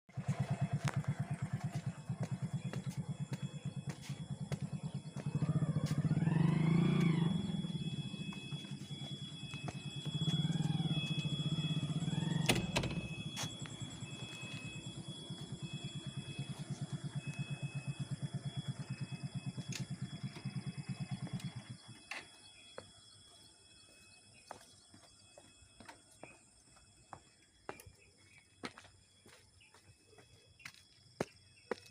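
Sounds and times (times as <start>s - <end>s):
steady high tone: 0.2s - 22.4s.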